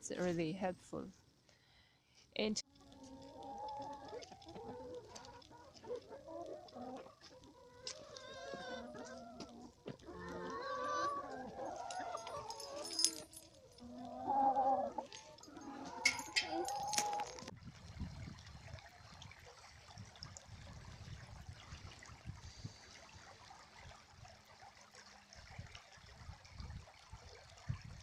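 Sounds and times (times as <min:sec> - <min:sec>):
chickens clucking: 0:02.9 - 0:12.8, 0:13.6 - 0:17.5.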